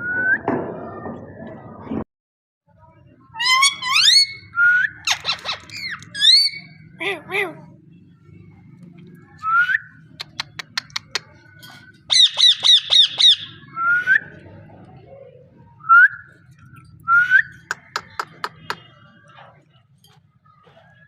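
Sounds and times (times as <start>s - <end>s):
parakeet squawks: 3.4s - 6.9s, 12.1s - 13.6s
parakeet clicks: 10.2s - 11.3s.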